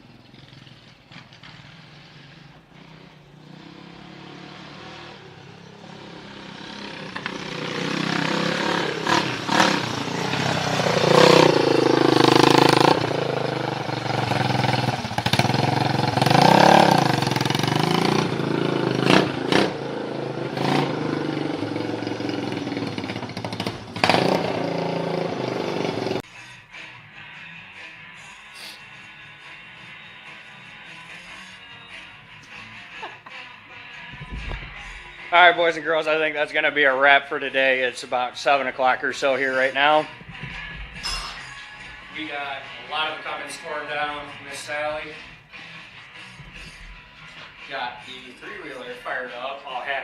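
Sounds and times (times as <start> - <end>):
three-wheeler engine revving: 0.0 - 26.3.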